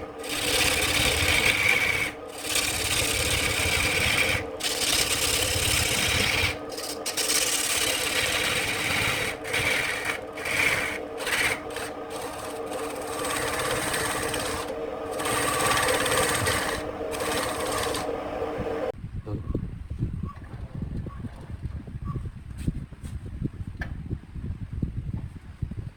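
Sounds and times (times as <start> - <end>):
lathe motor hum: 0.0 - 18.9
tool scraping spinning wood: 0.0 - 18.9.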